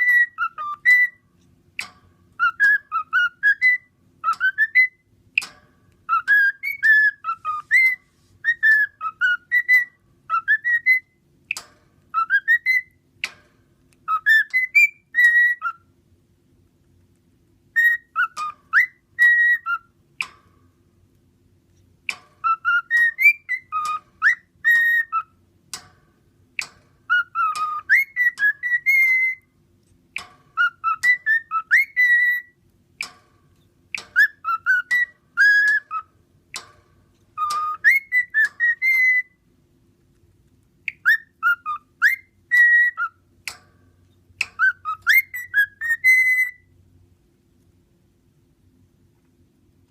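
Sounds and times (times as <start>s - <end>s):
cockatiel whistling: 0.0s - 1.2s, 2.4s - 5.5s, 6.1s - 13.4s, 14.0s - 15.9s, 17.7s - 20.3s, 22.1s - 25.4s, 26.6s - 29.5s, 30.6s - 32.6s, 34.0s - 36.7s, 37.4s - 39.4s, 40.9s - 43.2s, 44.4s - 46.7s
sharp bird clicks: 1.8s - 15.8s, 17.8s - 20.5s, 22.0s - 26.0s, 26.6s - 29.4s, 33.0s - 39.2s, 40.4s - 46.6s.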